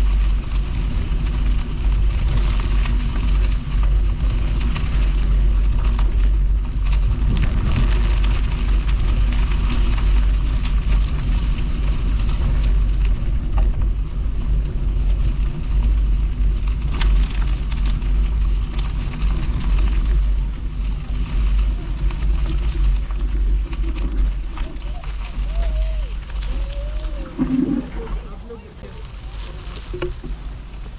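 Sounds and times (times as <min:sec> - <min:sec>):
tyres crackling on towpath: 0:00.0 - 0:30.9
wind buffeting microphone: 0:00.0 - 0:30.9.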